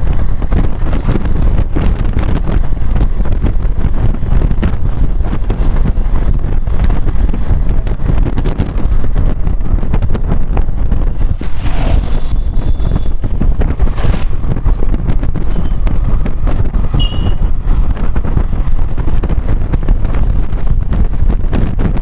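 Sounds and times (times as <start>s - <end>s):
motorcycle engine and road rumble: 0.0s - 22.0s
wind buffeting microphone: 0.0s - 22.0s.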